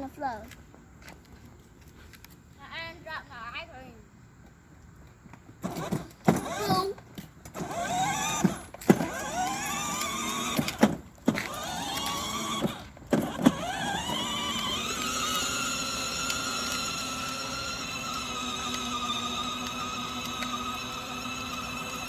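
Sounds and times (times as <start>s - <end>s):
toy car electric motor whining: 5.6s - 22.0s.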